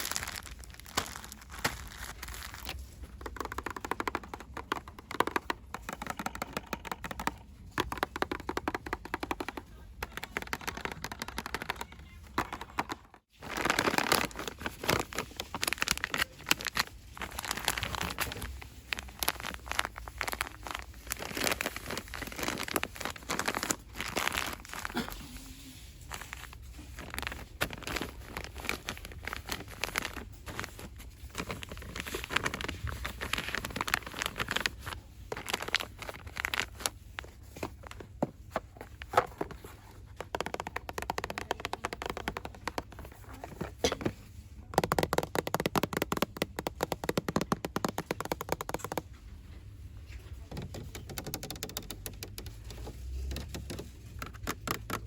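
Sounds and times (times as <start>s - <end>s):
crinkling and rustling by hand: 0.0s - 55.0s
quick taps and scratches: 3.0s - 13.2s, 37.4s - 49.3s
rapid even tapping: 3.1s - 13.2s.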